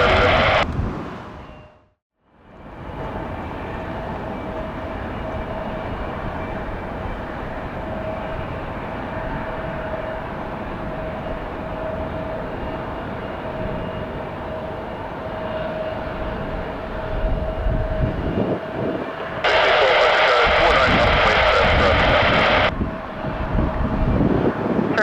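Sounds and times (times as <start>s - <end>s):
jet engines rushing and whining: 0.0s - 1.5s, 2.4s - 25.0s.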